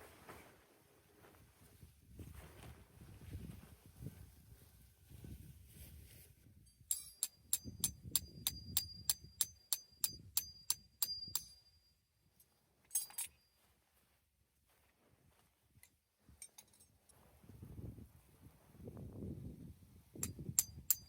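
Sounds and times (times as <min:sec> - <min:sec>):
metal clink: 0:06.7 - 0:13.6, 0:16.4 - 0:17.0, 0:20.2 - 0:21.0
hammer striking tent peg: 0:06.9 - 0:11.6, 0:20.2 - 0:21.0.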